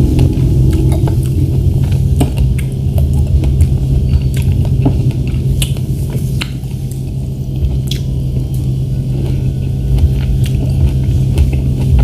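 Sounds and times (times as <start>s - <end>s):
steady low hum: 0.0s - 12.0s
chewing strawberries: 2.6s - 12.0s
wet mouth clicks: 7.9s - 8.1s.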